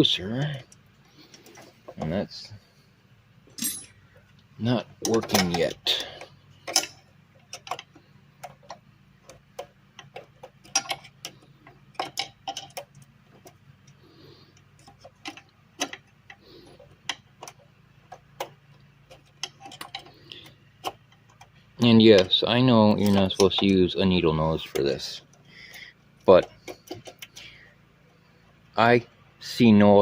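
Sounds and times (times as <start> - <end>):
faint low hum: 0.0 - 30.0
hand tool clicking on metal: 22.1 - 23.8.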